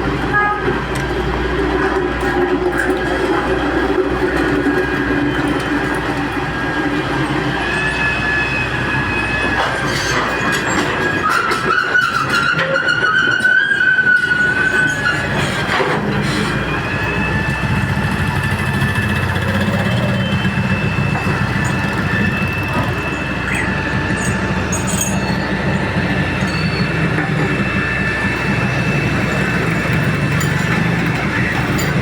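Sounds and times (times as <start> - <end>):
excavator diesel engine drone: 0.0 - 12.1, 12.7 - 32.0
high-pitched whine: 16.1 - 32.0.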